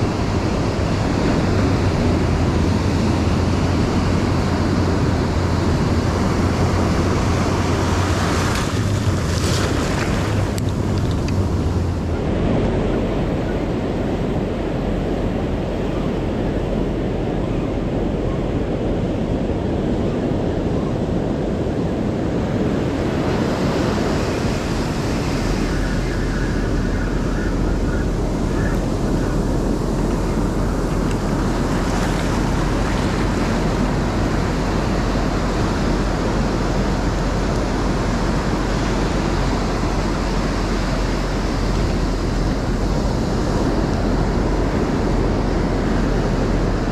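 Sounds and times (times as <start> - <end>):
ocean surf on a beach: 0.0 - 46.9
wind buffeting microphone: 0.0 - 46.9.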